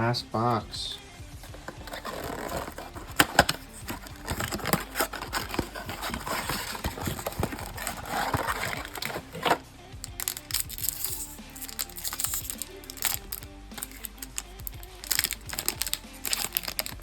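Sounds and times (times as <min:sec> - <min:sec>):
cardboard clicks and taps: 0:01.4 - 0:10.4
plastic wrapping crinkling: 0:01.4 - 0:17.0.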